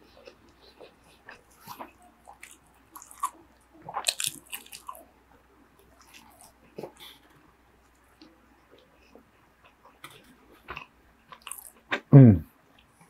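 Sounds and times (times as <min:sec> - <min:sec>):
close chewing: 0:00.0 - 0:05.1, 0:05.8 - 0:12.0.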